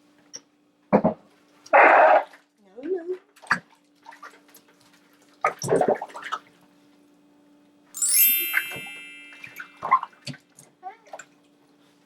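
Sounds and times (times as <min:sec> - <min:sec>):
bright chime ringing: 0:08.0 - 0:10.0.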